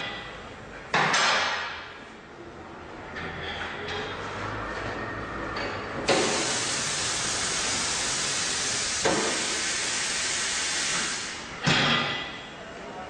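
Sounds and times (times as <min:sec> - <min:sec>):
compressed air hissing: 0:06.1 - 0:11.5.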